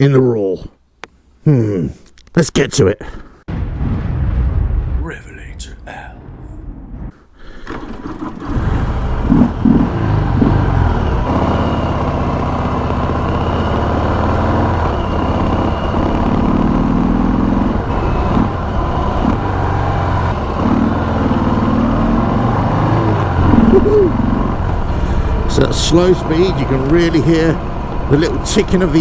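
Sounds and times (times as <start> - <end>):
motorcycle engine running: 7.7 - 29.0.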